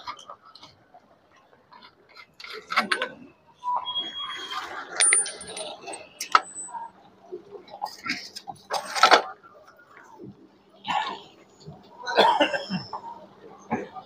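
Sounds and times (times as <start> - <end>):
high metallic rings: 3.8 - 6.9
metal tools clinking: 4.5 - 6.8, 8.6 - 9.2.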